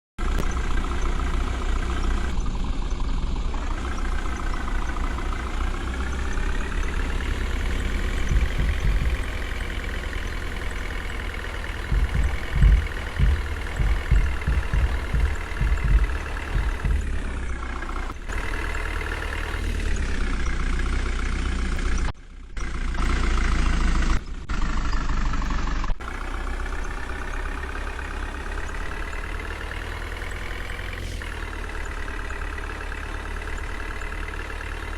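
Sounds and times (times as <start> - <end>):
diesel engine revving: 0.2 - 34.9
heavy low thumps: 7.4 - 18.0.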